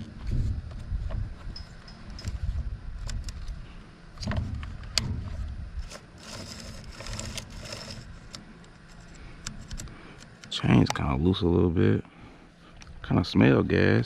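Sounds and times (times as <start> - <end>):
chainsaw pull-start cord surges: 5.9 - 8.4.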